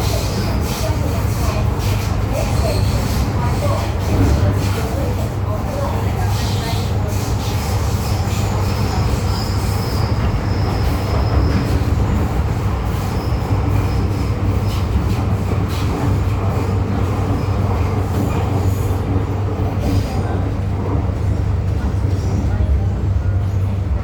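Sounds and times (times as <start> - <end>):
train rumbling on rails: 0.0 - 24.0
faint high wheel squeal: 7.4 - 12.0.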